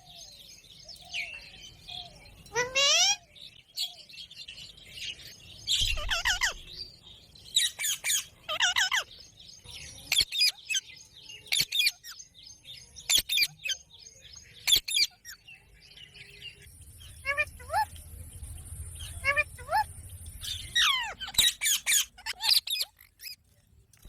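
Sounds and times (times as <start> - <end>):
parrot chirping and calling: 2.5 - 3.9, 5.7 - 6.7, 7.6 - 9.2, 10.0 - 10.8, 11.5 - 12.2, 13.1 - 13.8, 17.0 - 18.0, 19.0 - 23.4.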